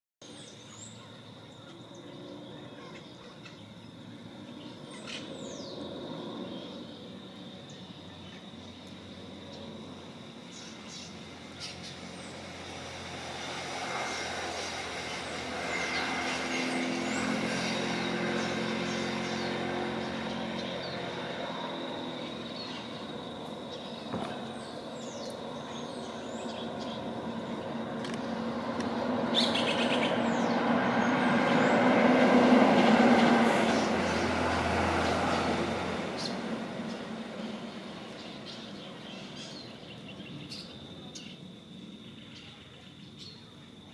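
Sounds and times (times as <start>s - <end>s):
vehicle engine passing by: 4.0s - 40.7s.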